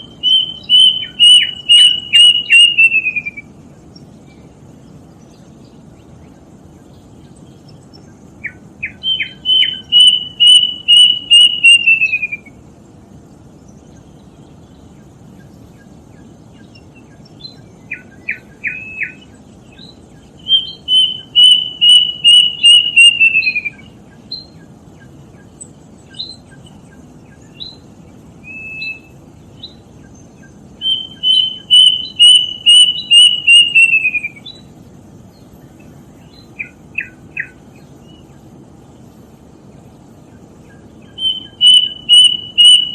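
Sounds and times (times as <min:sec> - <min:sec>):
cuckoo whistled song: 0:00.0 - 0:03.6, 0:08.4 - 0:12.6, 0:16.6 - 0:24.6, 0:26.1 - 0:27.8, 0:28.4 - 0:29.8, 0:30.4 - 0:34.7, 0:36.3 - 0:38.2, 0:40.6 - 0:42.9
low background hum: 0:00.0 - 0:42.9.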